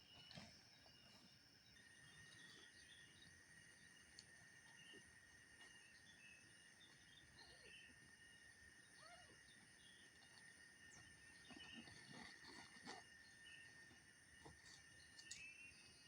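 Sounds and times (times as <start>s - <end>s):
night insects trilling: 0.0s - 16.0s
small chirps: 8.9s - 13.8s.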